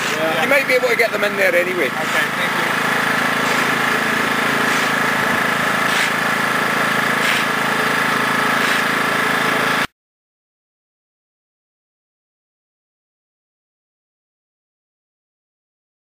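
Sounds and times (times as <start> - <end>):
mechanical hum with high tone: 0.0 - 9.9.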